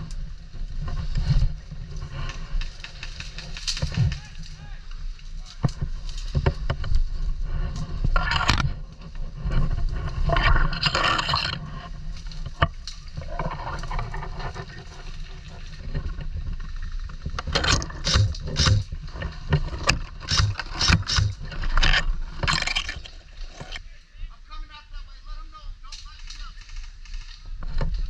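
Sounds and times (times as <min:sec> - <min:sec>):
low wind rumble on microphone: 0:00.0 - 0:23.9, 0:26.6 - 0:28.0
rustling and scraping: 0:00.0 - 0:23.9, 0:25.9 - 0:28.0
sharp clicks: 0:17.4 - 0:18.9, 0:19.8 - 0:23.8.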